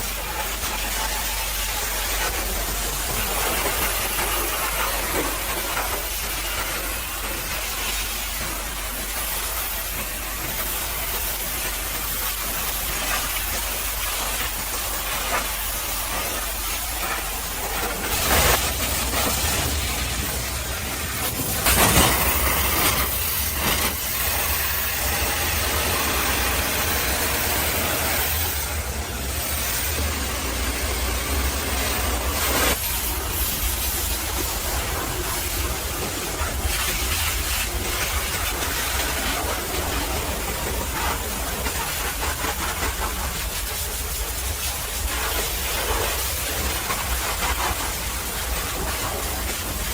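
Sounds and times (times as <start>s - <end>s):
pressure washer jet spraying: 0.0s - 49.9s
engine rumble: 15.4s - 36.7s
thin high whine: 16.2s - 33.2s.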